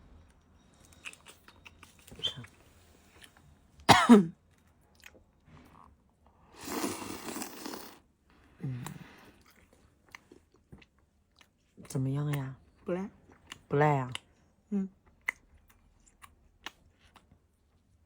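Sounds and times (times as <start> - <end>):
chewing fried dough: 0.8 - 3.6, 4.5 - 18.0
cough-like vocal sound: 3.9 - 4.4.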